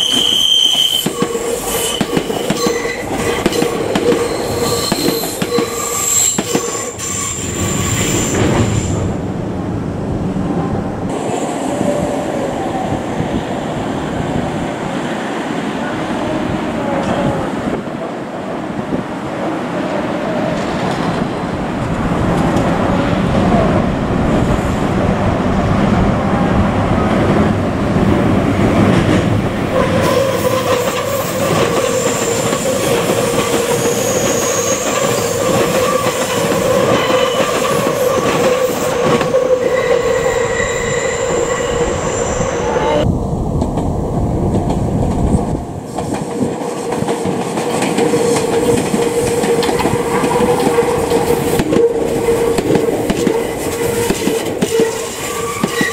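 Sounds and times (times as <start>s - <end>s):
high-pitched wheel squeal: 0.0s - 3.1s, 4.1s - 9.0s, 33.8s - 36.2s, 39.0s - 43.0s, 53.2s - 55.9s
train rumble and wheel clatter: 0.0s - 55.9s.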